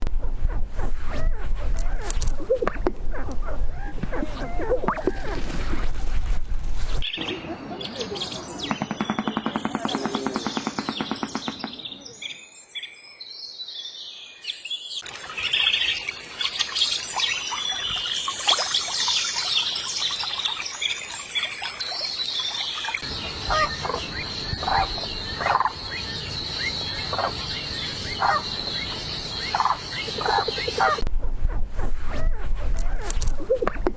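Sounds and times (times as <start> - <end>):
dense high bird chirping: 7.0 - 31.0
short repeated bird calls: 22.8 - 31.0.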